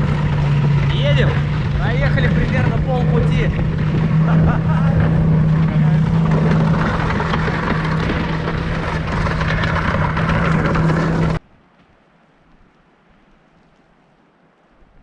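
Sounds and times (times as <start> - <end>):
snowmobile engine running: 0.0 - 11.4
track noise: 0.0 - 11.4
wind: 0.0 - 15.0.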